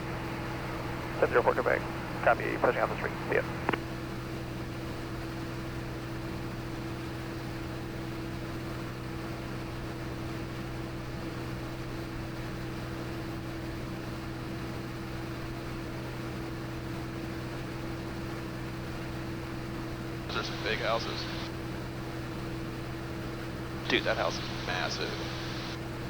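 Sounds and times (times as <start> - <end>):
airplane engine drone: 0.0 - 16.7, 17.4 - 26.0.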